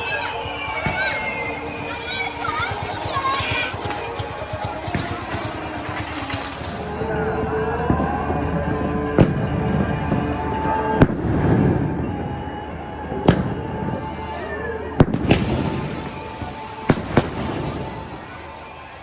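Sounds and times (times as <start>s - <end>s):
firecrackers banging: 0.0s - 19.0s
music: 0.0s - 19.0s
outdoor noise: 0.0s - 19.0s.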